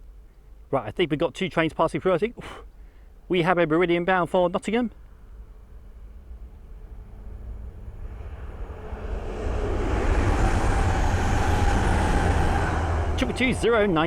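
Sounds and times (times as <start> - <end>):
diesel train passing: 5.0 - 14.0.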